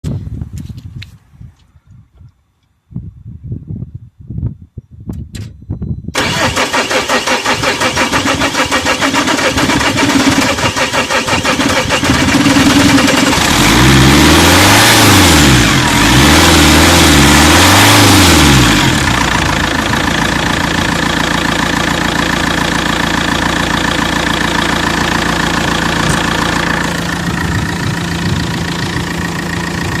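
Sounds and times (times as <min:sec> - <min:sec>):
starter motor cranking: 0:06.2 - 0:14.0
diesel engine revving and idling: 0:06.2 - 0:30.0.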